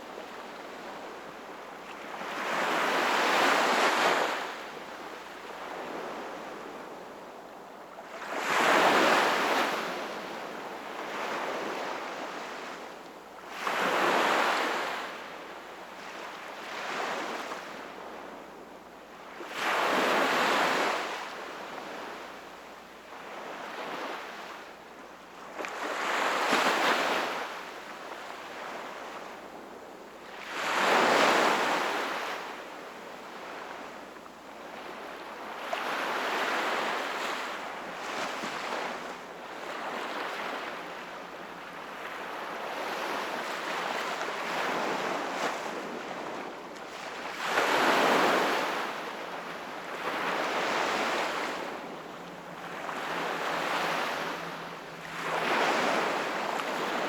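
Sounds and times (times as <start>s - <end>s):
sea waves breaking: 39.6s - 57.0s.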